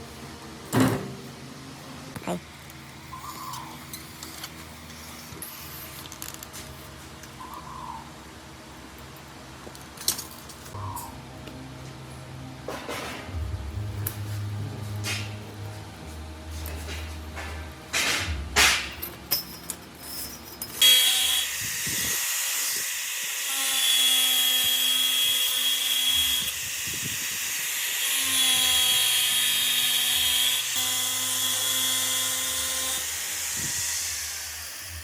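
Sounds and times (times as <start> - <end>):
power tool whining: 20.8 - 35.0.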